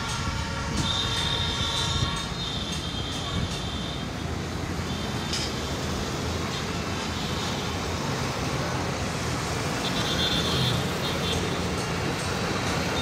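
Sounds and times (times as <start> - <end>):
diesel locomotive engine rumble: 0.0 - 9.9
train coaches rolling: 0.0 - 13.0.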